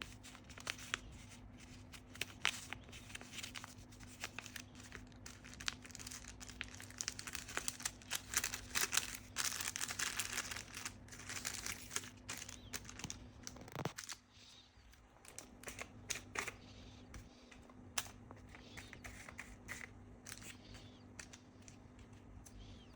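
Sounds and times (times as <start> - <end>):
crinkling and rustling: 0.0 - 16.6.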